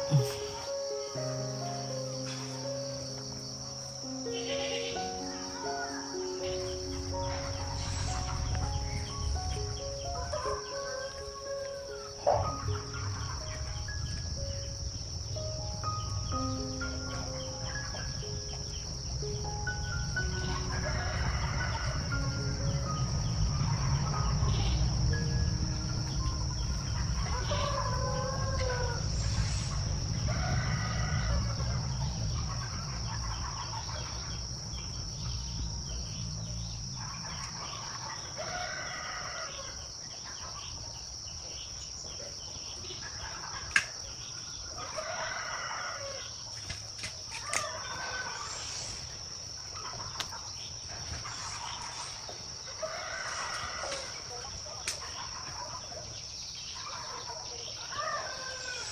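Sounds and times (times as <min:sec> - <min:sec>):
high-pitched insect drone: 0:00.0 - 0:40.6, 0:47.4 - 0:55.2, 0:57.8 - 0:58.9
chickens calling: 0:00.0 - 0:58.9
rooster crowing: 0:20.1 - 0:24.8, 0:26.5 - 0:34.5, 0:37.9 - 0:40.0, 0:44.7 - 0:46.4, 0:52.6 - 0:55.0, 0:56.8 - 0:58.9.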